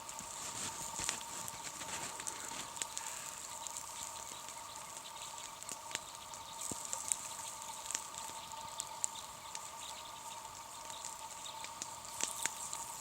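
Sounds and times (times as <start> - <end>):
campfire crackling and popping: 0.0 - 13.0
fire hissing: 0.0 - 13.0.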